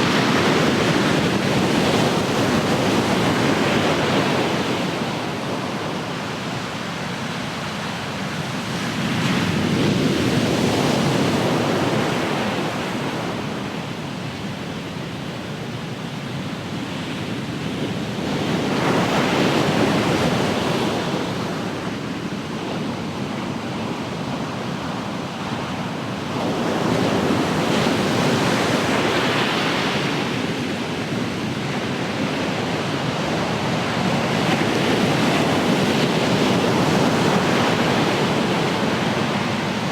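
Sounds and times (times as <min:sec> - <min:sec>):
ocean waves breaking on shore: 0:00.0 - 0:14.9, 0:16.2 - 0:39.9.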